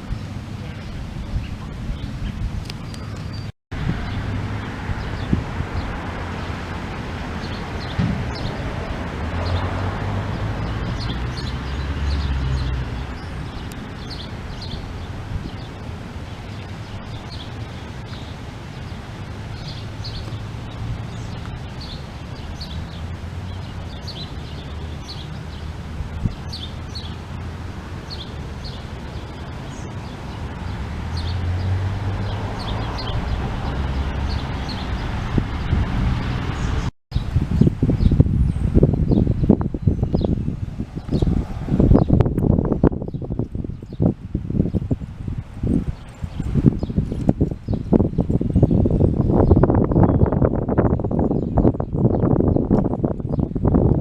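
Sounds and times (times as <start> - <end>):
wind on microphone: 0.0 - 54.0
birds chirping: 0.6 - 54.0.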